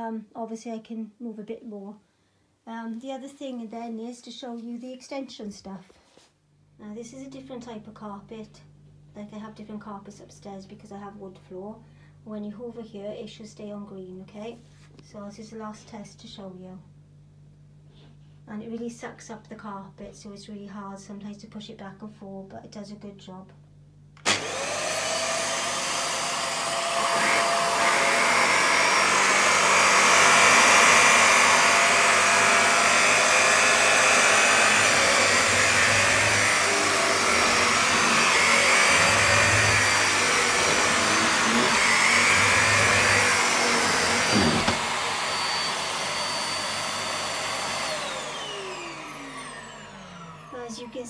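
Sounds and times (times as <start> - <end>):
vacuum cleaner motor whine: 24.2 - 51.0.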